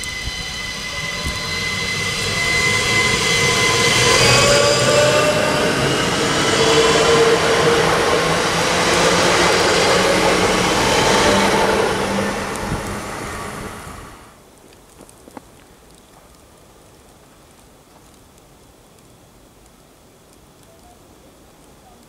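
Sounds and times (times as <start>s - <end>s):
train passing at speed: 0.0s - 14.4s.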